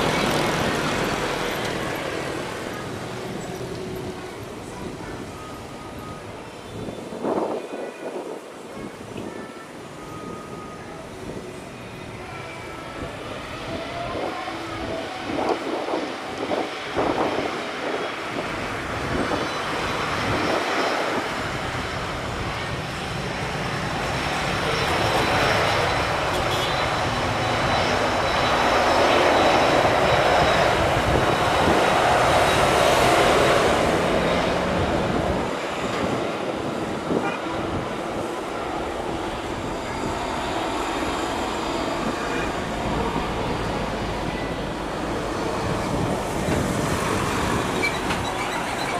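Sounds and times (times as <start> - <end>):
high jet whine: 0.0 - 48.9
jet engine roar: 10.1 - 48.9.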